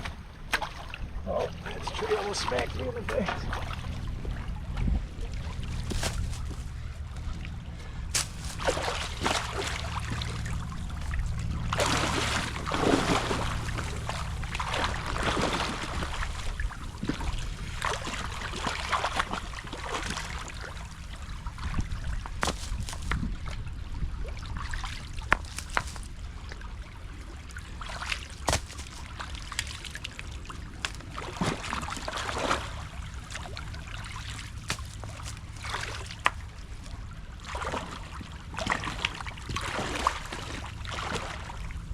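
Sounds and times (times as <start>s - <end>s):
creek water splashing: 0.0s - 41.9s
sharp knocks of sticks and rocks: 5.8s - 6.7s, 8.1s - 10.3s, 22.3s - 23.2s, 25.2s - 26.1s, 28.2s - 29.7s, 34.5s - 35.6s.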